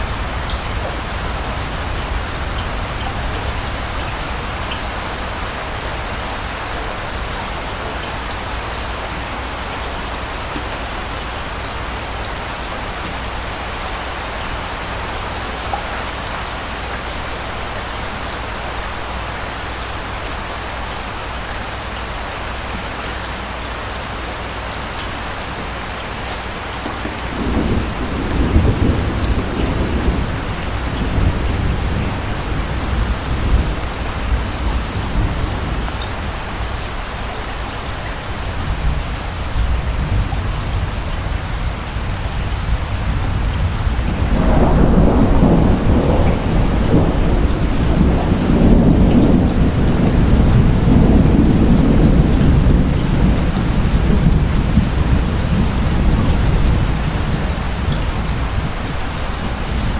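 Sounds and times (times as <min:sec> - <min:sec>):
steady rain falling: 0:00.0 - 0:59.9
distant thunder rumble: 0:25.0 - 0:37.0, 0:38.4 - 0:59.9.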